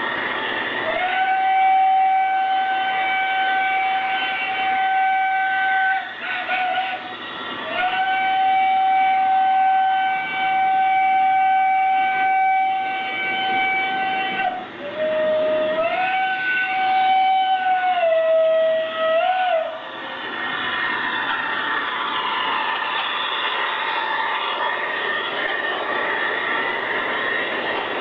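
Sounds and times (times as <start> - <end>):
train running on track: 0.0 - 28.0
model train whistle blowing: 0.8 - 19.8.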